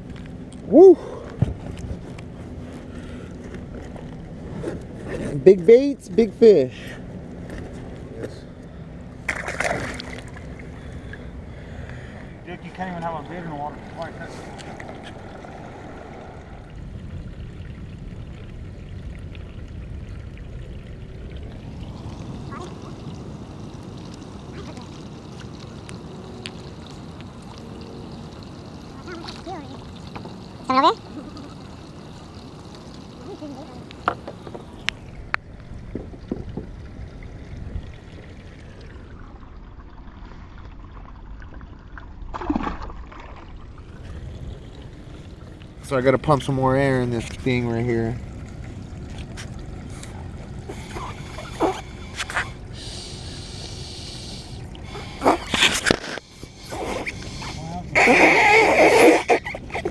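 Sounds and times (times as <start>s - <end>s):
water sloshing: 7.0s - 53.4s
water dripping: 7.3s - 53.8s
wind rumble on microphone: 34.4s - 42.0s.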